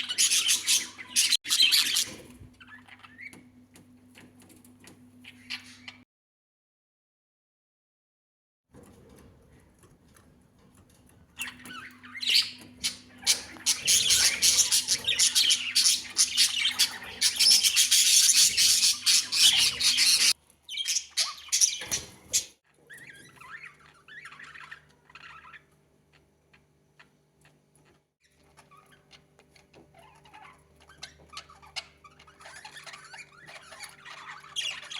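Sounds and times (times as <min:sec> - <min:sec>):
budgerigars squawking and chattering: 0:00.0 - 0:03.4, 0:05.2 - 0:06.0, 0:11.4 - 0:25.7, 0:28.3 - 0:34.9
soft bird chirping: 0:00.0 - 0:06.0, 0:11.3 - 0:34.9.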